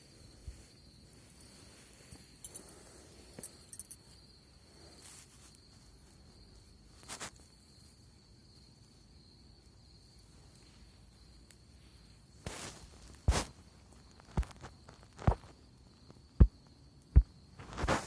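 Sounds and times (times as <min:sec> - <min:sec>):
high insect trill: 0:00.0 - 0:18.0
brief crackles: 0:12.4 - 0:13.6, 0:17.6 - 0:18.0.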